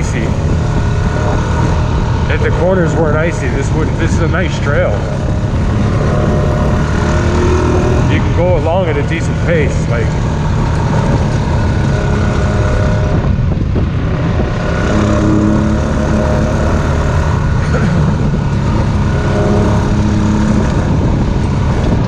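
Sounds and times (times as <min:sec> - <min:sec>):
atv engine running: 0:00.0 - 0:22.0
road and wind noise: 0:00.0 - 0:22.0.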